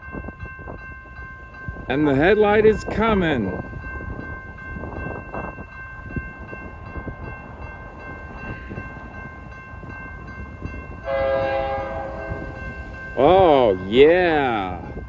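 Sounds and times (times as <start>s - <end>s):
freight train rumbling: 0.0s - 15.0s
high ringing tones: 0.0s - 15.0s
locomotive horn: 11.0s - 12.6s.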